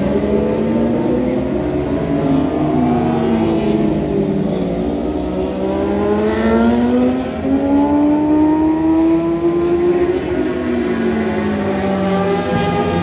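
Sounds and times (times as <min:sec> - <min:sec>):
racing motorcycle engines accelerating: 0:00.0 - 0:13.0.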